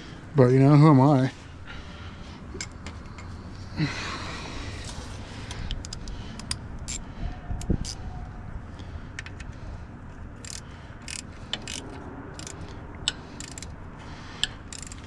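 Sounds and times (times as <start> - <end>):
socket ratchet clicking: 5.5 - 7.0, 7.6 - 8.0, 10.4 - 13.8, 14.4 - 15.0.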